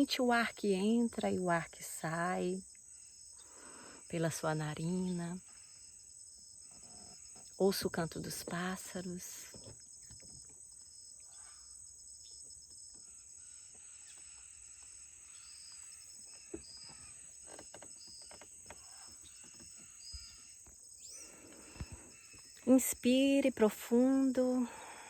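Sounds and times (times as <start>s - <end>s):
insect chirring: 0.0s - 25.0s
bird chirps: 10.0s - 22.8s.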